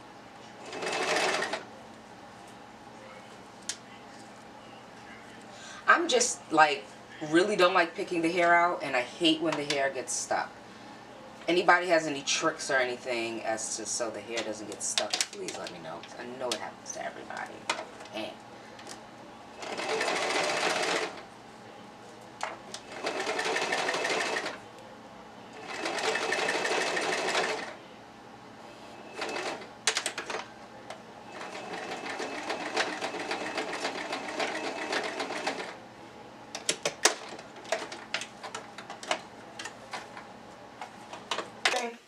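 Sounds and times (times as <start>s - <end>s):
sewing machine stitching: 0.7s - 1.6s, 19.6s - 21.2s, 22.9s - 24.6s, 25.6s - 27.7s, 29.1s - 30.4s, 31.3s - 35.8s.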